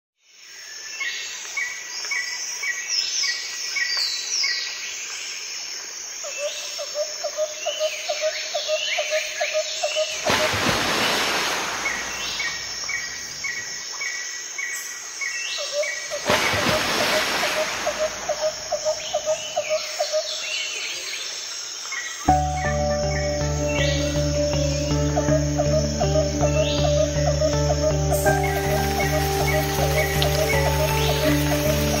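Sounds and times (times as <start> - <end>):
birds chirping: 9.8 - 14.1, 15.8 - 21.3, 22.0 - 32.0
low pulsed bird call: 15.8 - 20.2, 22.3 - 32.0.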